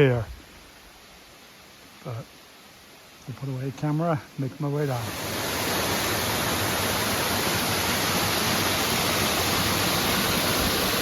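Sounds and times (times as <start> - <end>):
waterfall rushing: 4.2 - 11.0.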